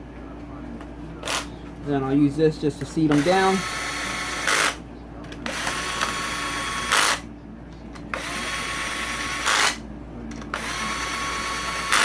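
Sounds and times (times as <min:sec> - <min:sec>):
power driver whirring: 0:03.0 - 0:07.3, 0:08.0 - 0:12.0.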